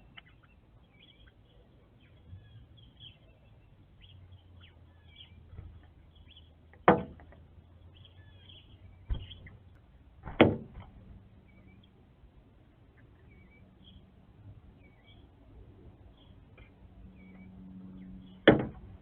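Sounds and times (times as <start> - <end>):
faint high bird chirps: 0.0 - 6.6, 7.9 - 9.7, 13.0 - 14.1, 14.8 - 15.3
bird knocking on window glass: 9.1 - 9.5, 10.2 - 10.9.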